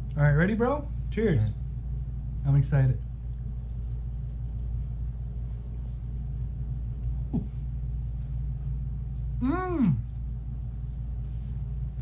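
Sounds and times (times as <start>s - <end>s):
steady low hum: 0.0s - 12.0s
faint chewing: 3.0s - 12.0s
person saying mm: 9.4s - 10.1s.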